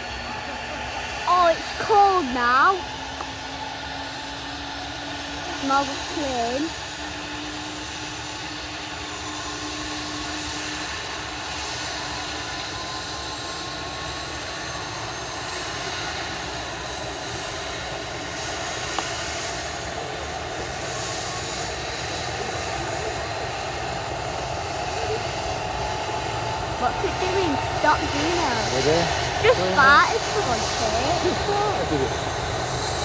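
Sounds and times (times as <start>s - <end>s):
helicopter engine and rotor: 0.0s - 33.0s
high steady whine: 17.7s - 33.0s.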